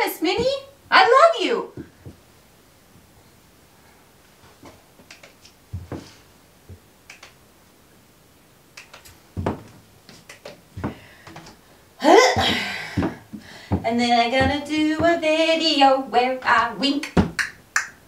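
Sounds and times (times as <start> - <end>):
woman speaking: 0.0 - 1.8, 13.8 - 17.2.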